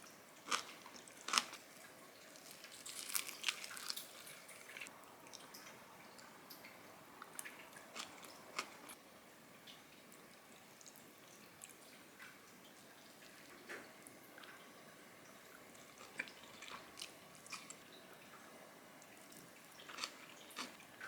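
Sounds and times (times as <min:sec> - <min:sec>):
crisp crunching and chewing: 0:00.5 - 0:01.6, 0:02.3 - 0:04.9, 0:07.8 - 0:09.0, 0:19.2 - 0:20.8.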